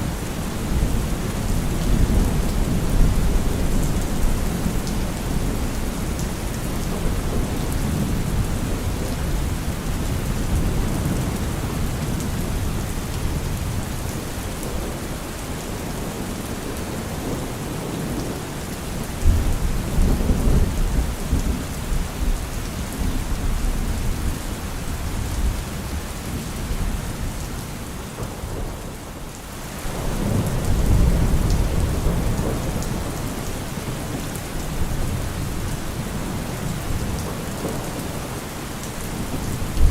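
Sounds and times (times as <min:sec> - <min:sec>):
steady rain: 0:00.0 - 0:39.9
rolling thunder: 0:39.1 - 0:39.9.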